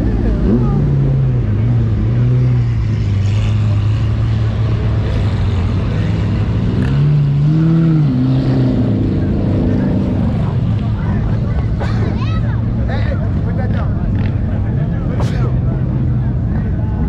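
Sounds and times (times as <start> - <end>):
car engine revving: 0.0 - 11.8
car engines running at low revs: 0.0 - 17.0.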